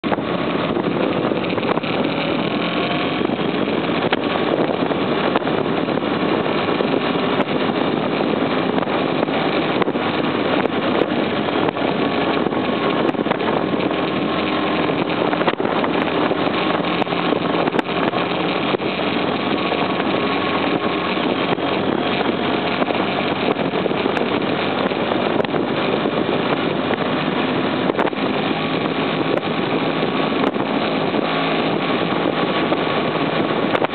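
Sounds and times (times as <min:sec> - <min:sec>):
motorcycle engine running: 0:00.0 - 0:33.9
wind rush on microphone: 0:00.0 - 0:33.9.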